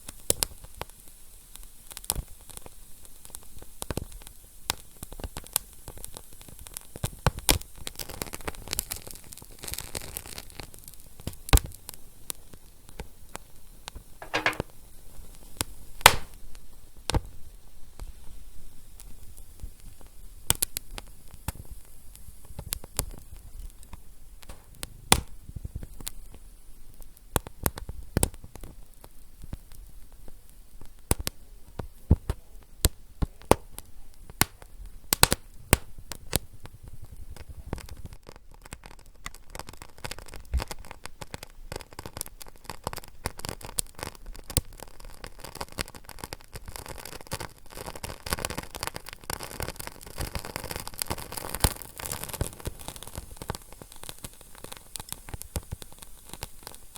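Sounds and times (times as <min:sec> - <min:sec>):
wood fire crackling: 0:14.2 - 0:17.2, 0:19.0 - 0:56.9
fire hissing: 0:49.2 - 0:56.9.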